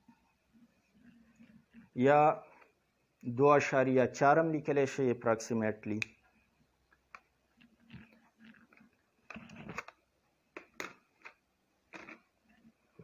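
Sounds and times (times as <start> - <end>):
faint scratching and clicking: 0.0 - 2.8, 5.9 - 13.0.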